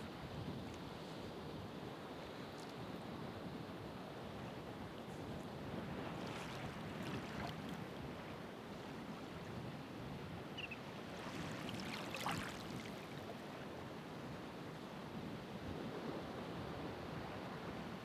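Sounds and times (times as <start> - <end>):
waves breaking and hissing: 11.1 - 13.2.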